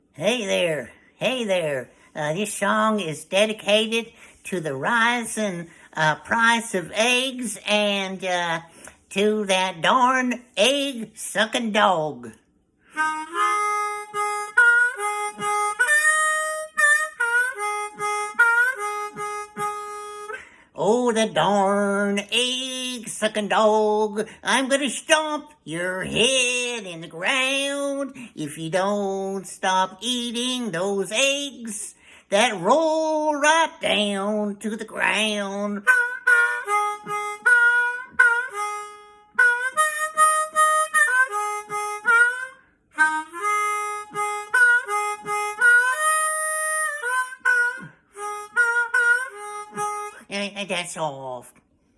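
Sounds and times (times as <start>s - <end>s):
harmonica melody: 12.9s - 23.1s, 35.0s - 50.7s.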